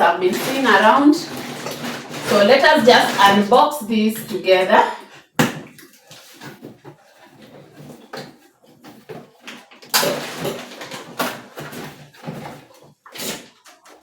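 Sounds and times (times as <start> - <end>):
cardboard rustling and scraping: 0.0 - 3.6, 6.0 - 14.0.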